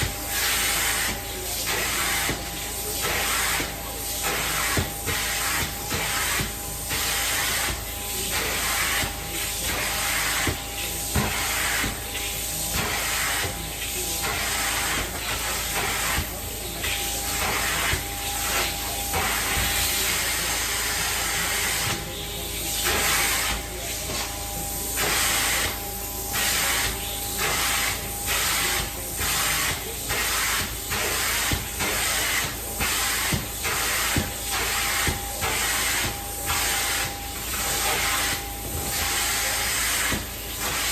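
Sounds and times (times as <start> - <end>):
carpet cleaning wand hissing: 0.0 - 40.9.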